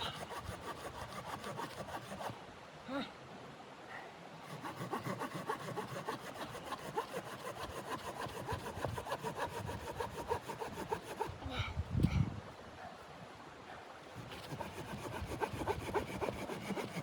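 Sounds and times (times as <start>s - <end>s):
hand saw cutting wood: 0.0s - 2.4s, 4.5s - 11.4s, 14.2s - 17.0s.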